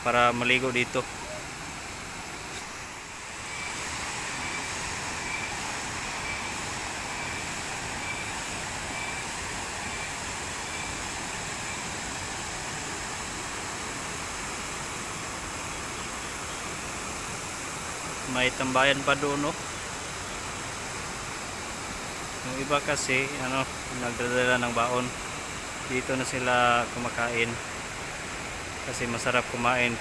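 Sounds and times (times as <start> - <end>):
water rushing over rocks: 0.0 - 30.0
faint high chirps: 2.5 - 11.0.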